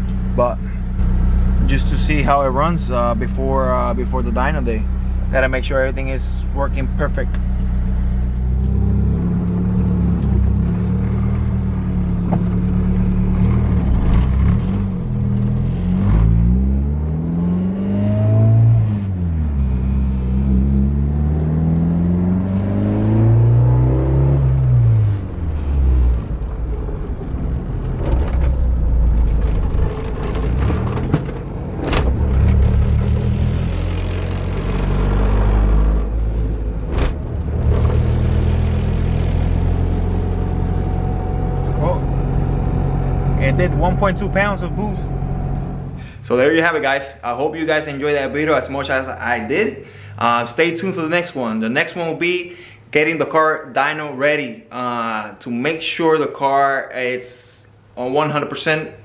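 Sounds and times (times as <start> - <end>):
car engine revving: 0.0 - 46.3.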